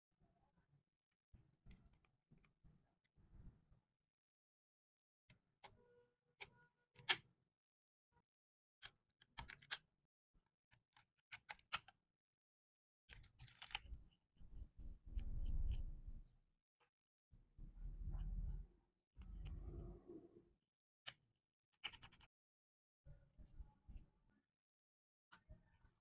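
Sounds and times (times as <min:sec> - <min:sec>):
low rumble with buzzing tone: 0:14.5 - 0:16.2, 0:17.6 - 0:20.4.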